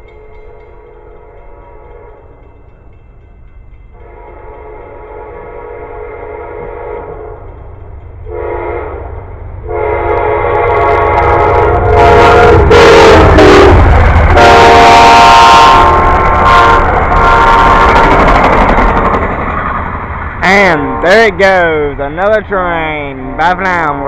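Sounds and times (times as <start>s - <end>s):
train rumbling past: 0.0s - 24.0s
locomotive air horn blasts: 4.0s - 7.5s, 8.3s - 18.3s, 20.7s - 21.4s, 23.1s - 23.8s.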